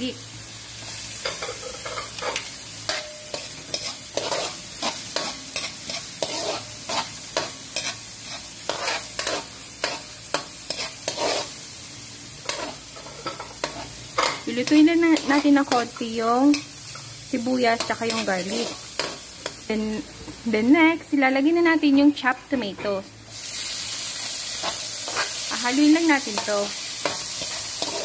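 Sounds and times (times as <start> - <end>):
garlic and onion sizzling in oil: 0.0 - 28.0
metal spoon scraping a wok: 0.8 - 11.7, 12.4 - 17.1, 17.7 - 19.6, 24.6 - 28.0.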